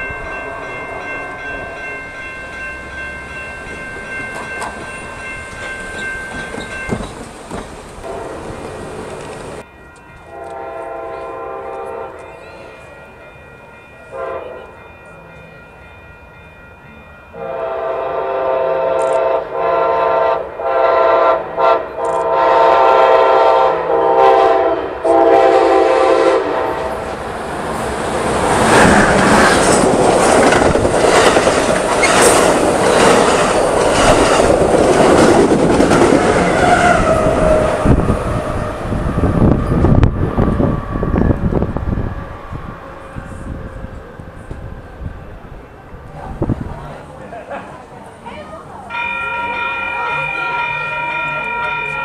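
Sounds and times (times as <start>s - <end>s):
train passing with wheel clatter: 0.0s - 52.0s
train air horn blasts: 8.0s - 9.0s, 10.3s - 12.3s, 14.1s - 14.8s, 17.4s - 27.1s, 36.3s - 40.5s.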